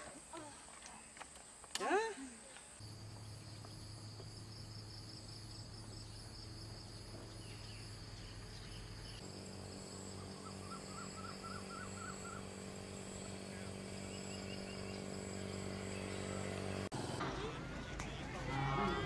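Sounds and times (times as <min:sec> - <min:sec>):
insects chirring: 0:02.4 - 0:16.9
bird chirping: 0:02.5 - 0:09.4, 0:10.0 - 0:12.5, 0:13.1 - 0:16.8.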